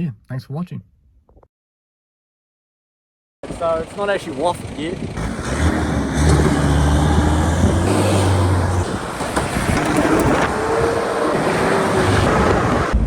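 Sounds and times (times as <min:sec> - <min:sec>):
low engine hum: 0:05.0 - 0:13.0.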